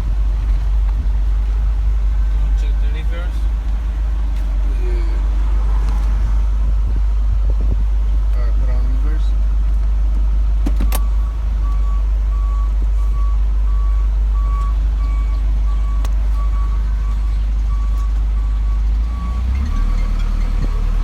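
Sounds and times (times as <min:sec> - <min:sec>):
truck engine rumble: 0:00.0 - 0:21.0
truck reversing alarm beeping: 0:10.7 - 0:21.0.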